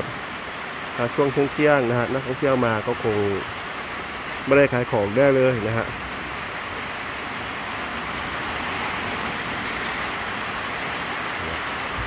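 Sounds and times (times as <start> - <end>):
rain hissing on roofs: 0.0 - 12.0.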